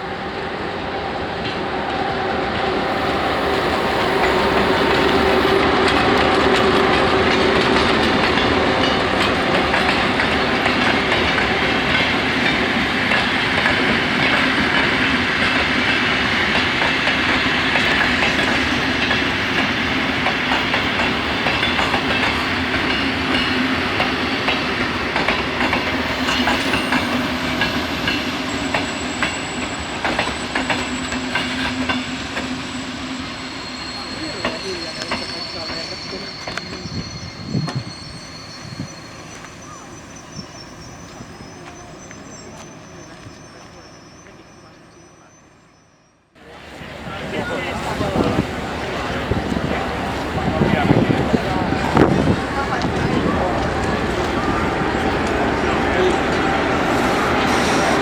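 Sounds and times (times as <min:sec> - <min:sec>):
diesel locomotive engine drone: 0:00.0 - 0:45.6, 0:46.2 - 0:58.0
thin high squeal: 0:26.0 - 0:45.4.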